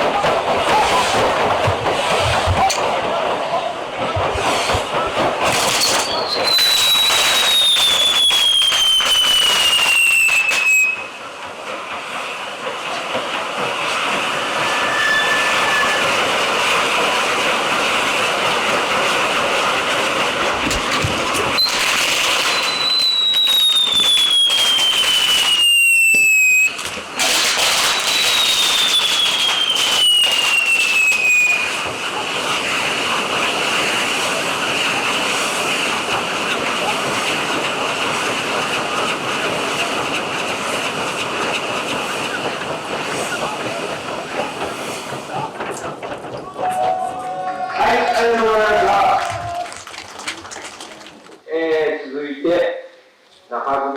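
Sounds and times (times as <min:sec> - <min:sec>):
whistling fireworks: 0:00.0 - 0:03.2, 0:04.1 - 0:45.5
fireworks hissing sparks: 0:04.4 - 0:44.0
sharp cracks: 0:20.7 - 0:25.6, 0:26.7 - 0:31.2.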